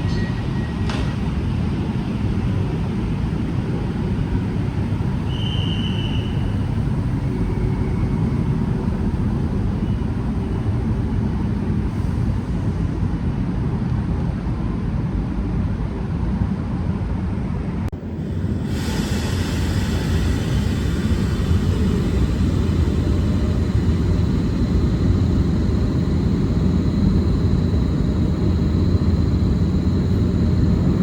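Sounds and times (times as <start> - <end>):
high squeal: 0.0 - 0.9, 5.2 - 8.6
train rumbling: 0.0 - 31.0.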